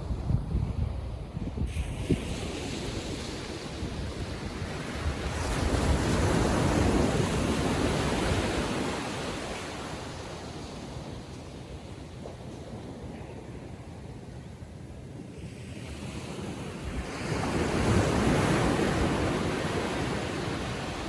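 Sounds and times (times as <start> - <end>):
wind on microphone: 0.0 - 13.4, 16.3 - 21.0
ocean wave breaking: 17.4 - 21.0.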